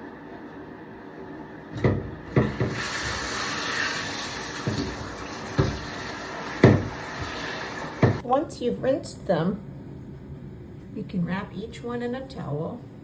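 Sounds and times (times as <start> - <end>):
tap water running: 1.8 - 8.2
knocks and bumps: 4.6 - 6.0, 6.6 - 7.3, 8.0 - 8.2.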